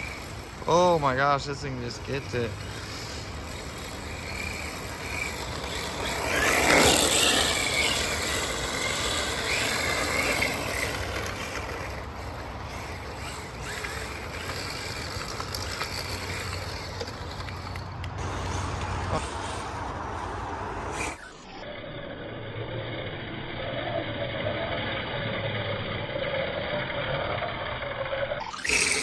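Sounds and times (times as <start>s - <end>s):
rc car motor whining: 0.0s - 29.0s.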